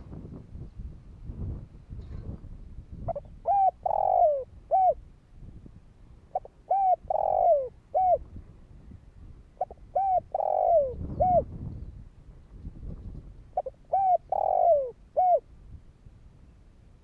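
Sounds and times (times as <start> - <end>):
dove cooing: 3.1 - 5.0, 6.3 - 8.2, 9.6 - 11.5, 13.6 - 15.4.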